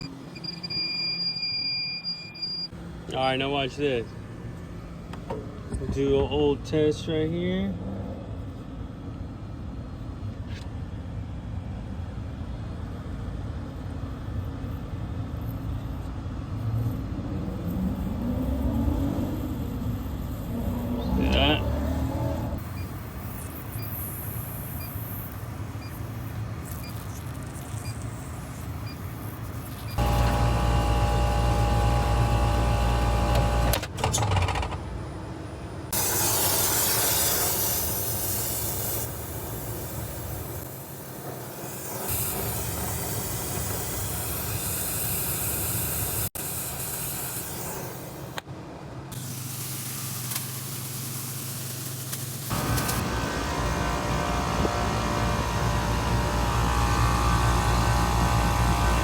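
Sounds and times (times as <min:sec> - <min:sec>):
steady machine hum: 0:27.6 - 0:33.8, 0:52.5 - 0:59.0.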